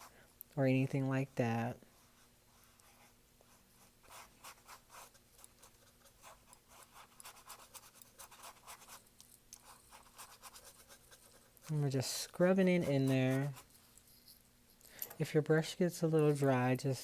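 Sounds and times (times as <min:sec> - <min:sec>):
paintbrush scratching on canvas: 0:01.2 - 0:09.0, 0:09.6 - 0:14.4.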